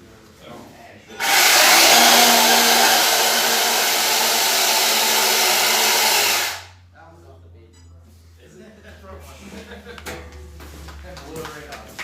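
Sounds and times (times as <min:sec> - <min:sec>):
toy vehicle motor whirring: 0:01.2 - 0:06.7.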